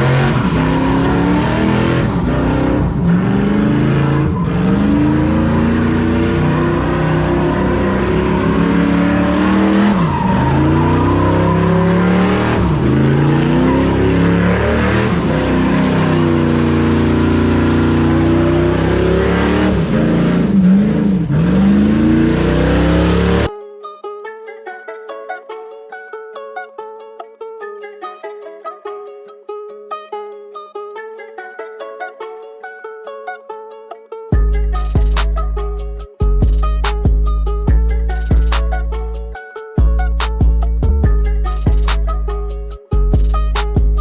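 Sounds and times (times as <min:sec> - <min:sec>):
truck engine revving: 0:00.0 - 0:23.5.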